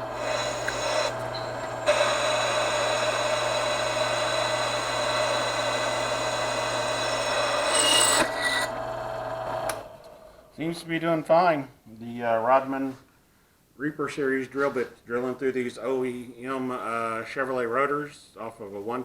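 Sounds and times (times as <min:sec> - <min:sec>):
power drill cutting into metal: 0:00.0 - 0:08.8
drill bit grinding metal: 0:00.0 - 0:09.8.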